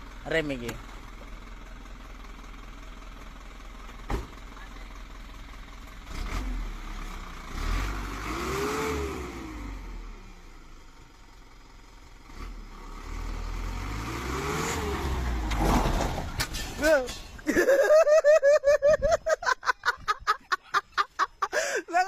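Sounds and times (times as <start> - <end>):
truck engine revving: 6.0 - 10.2, 12.2 - 18.0.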